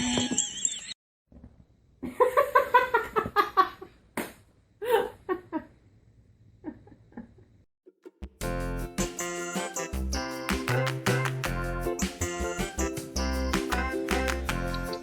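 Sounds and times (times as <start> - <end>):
music: 8.2 - 15.0.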